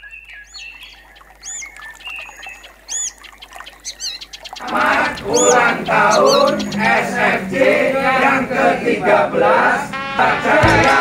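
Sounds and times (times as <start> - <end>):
lower whistled bird notes: 0.0 - 7.0
wavering bird trills: 0.0 - 7.4
birds chirping: 0.0 - 7.8
music with singing: 10.0 - 11.0.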